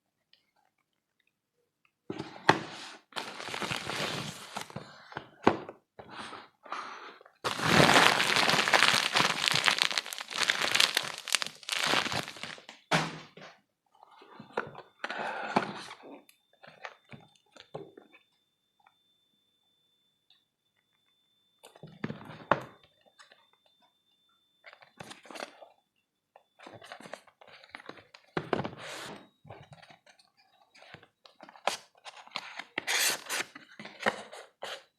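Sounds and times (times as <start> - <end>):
packaging crinkling and crunching: 3.1 - 4.8, 7.4 - 12.8
packaging rustling: 3.1 - 4.8, 7.5 - 12.7.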